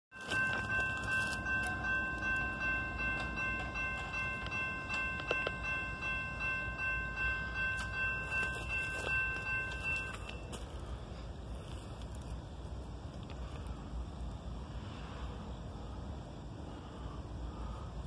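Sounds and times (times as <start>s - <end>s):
high-pitched ringing tone: 0.1s - 11.0s
train passing with rumble: 0.2s - 18.0s.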